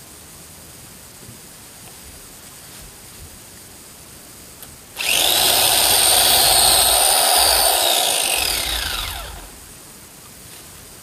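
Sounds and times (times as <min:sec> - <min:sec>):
electric chainsaw motor whining: 0:05.0 - 0:09.7.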